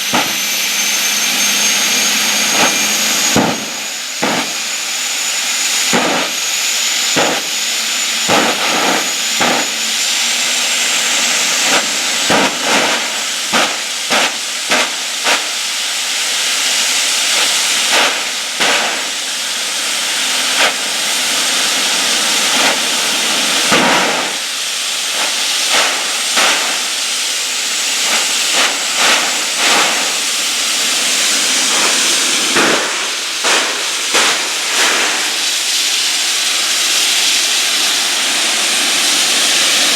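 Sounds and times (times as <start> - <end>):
turbine engine hiss and whine: 0.0 - 39.9
sharp cracks: 2.5 - 4.7, 5.8 - 6.4, 7.0 - 7.6, 8.2 - 10.0, 11.5 - 15.6, 25.2 - 27.2, 28.0 - 36.4.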